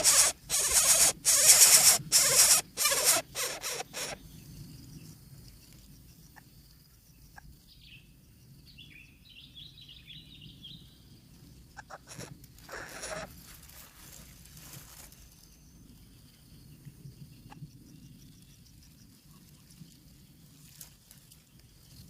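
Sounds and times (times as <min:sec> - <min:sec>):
rustling: 0:12.1 - 0:15.5.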